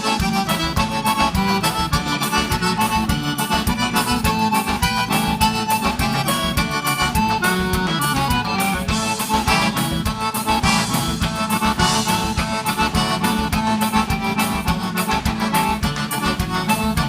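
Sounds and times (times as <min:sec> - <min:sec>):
accordion: 0:00.0 - 0:17.0
bass: 0:00.0 - 0:17.0
drums dance beat: 0:00.0 - 0:17.0.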